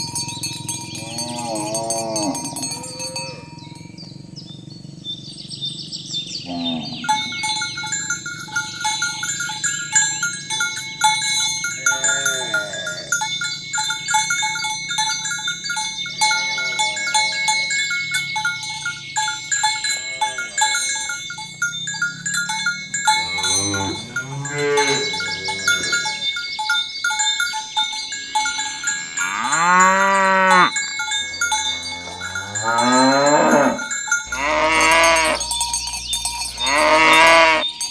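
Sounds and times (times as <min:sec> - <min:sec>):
cow bells clanking: 0:00.0 - 0:37.9
cattle mooing: 0:00.9 - 0:03.6, 0:06.4 - 0:07.4, 0:11.8 - 0:13.2, 0:16.3 - 0:17.7, 0:19.9 - 0:20.8, 0:23.1 - 0:26.3, 0:29.0 - 0:35.9, 0:36.5 - 0:37.7.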